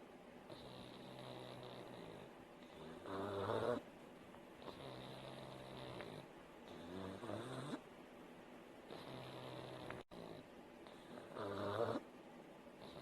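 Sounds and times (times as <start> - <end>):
dog snoring: 0.5 - 3.9, 4.6 - 7.8, 8.8 - 12.1, 12.8 - 13.0.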